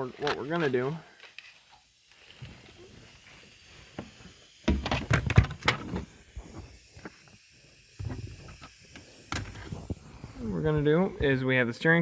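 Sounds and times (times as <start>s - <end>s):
hard parts knocking and rattling: 4.7s - 6.1s.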